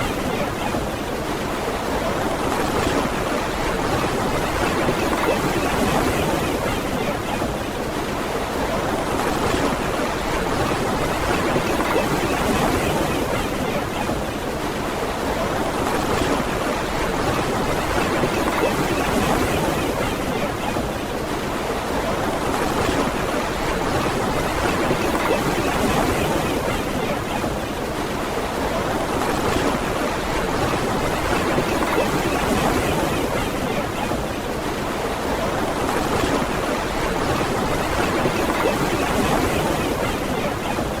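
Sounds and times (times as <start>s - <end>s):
ocean surf on a beach: 0.0s - 41.0s.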